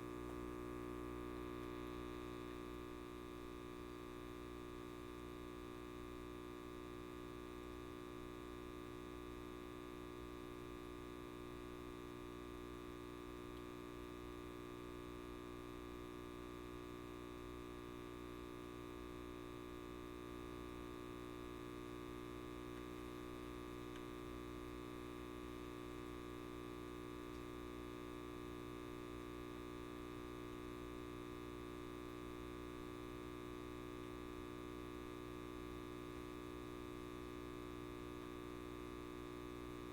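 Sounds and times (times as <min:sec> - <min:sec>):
light bulb electrical hum: 0:00.0 - 0:39.9.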